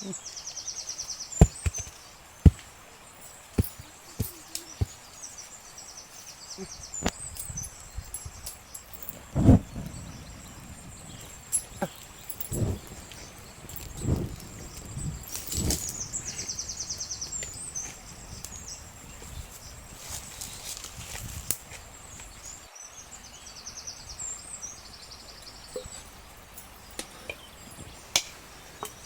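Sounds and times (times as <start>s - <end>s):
faint high chirping: 0.0s - 29.0s
outdoor background noise: 0.0s - 29.0s
heavy thumps: 1.4s - 2.8s, 3.5s - 5.0s.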